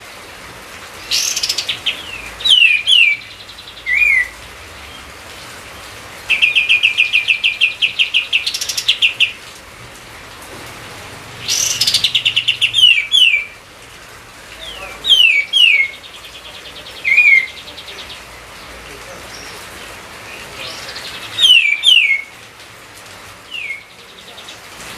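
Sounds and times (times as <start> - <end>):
songbird trilling and whistling: 1.0 - 4.4, 6.3 - 9.4, 11.4 - 13.6, 14.7 - 18.3, 20.6 - 22.3, 23.5 - 24.0.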